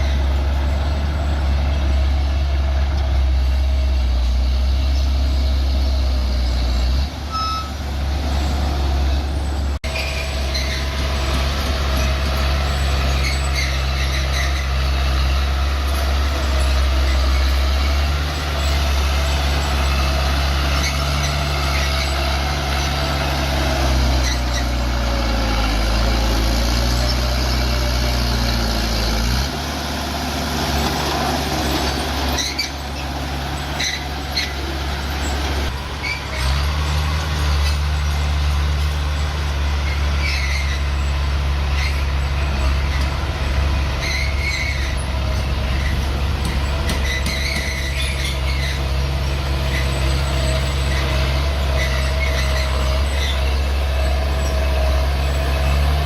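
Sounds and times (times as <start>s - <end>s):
bulldozer diesel engine: 0.0s - 56.0s
machine squeaks and clanks: 9.3s - 28.6s, 30.7s - 56.0s.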